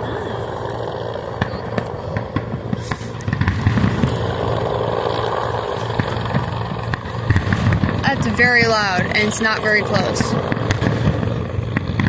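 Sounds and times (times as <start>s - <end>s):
distant fireworks bangs: 0.0s - 12.0s
low rumble: 0.0s - 12.0s.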